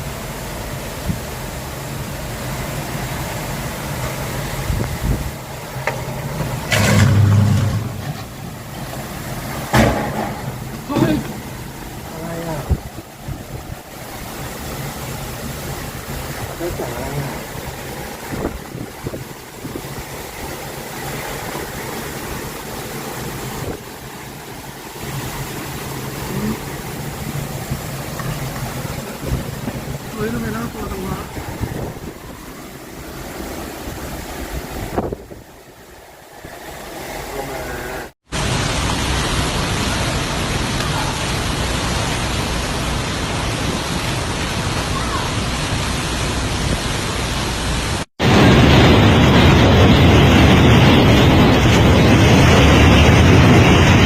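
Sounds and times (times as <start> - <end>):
vehicle engine humming: 0.0 - 33.7
rushing noise: 0.0 - 54.0.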